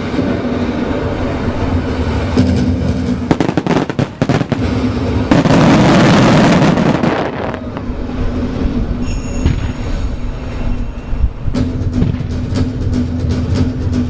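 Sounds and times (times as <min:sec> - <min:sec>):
fireworks crackling: 0:00.0 - 0:10.8
wind rumble on microphone: 0:00.0 - 0:13.8
fireworks sharp bangs: 0:02.0 - 0:08.4.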